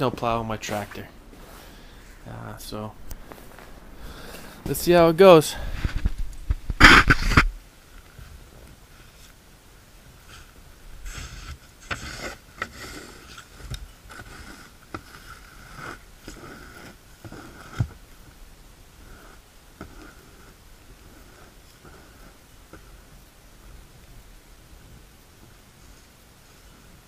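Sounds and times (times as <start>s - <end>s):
snow shovel scraping snow: 6.8s - 7.5s, 10.2s - 18.0s.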